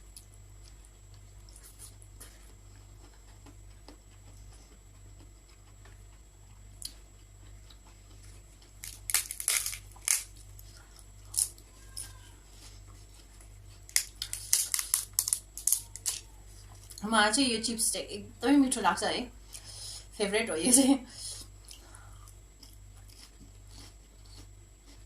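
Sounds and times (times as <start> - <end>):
faint steady hum: 0.0 - 25.0
prawn chips crunching: 8.7 - 12.8, 13.8 - 17.0.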